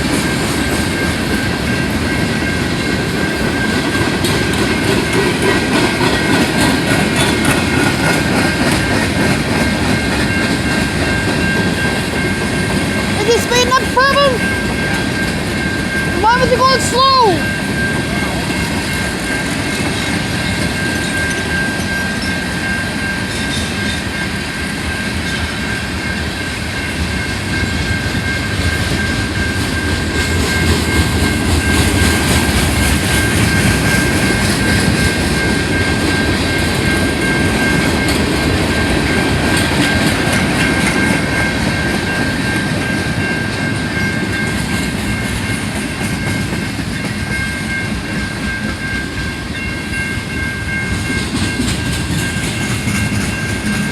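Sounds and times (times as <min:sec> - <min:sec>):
train rumbling and clattering: 0:00.0 - 0:53.9.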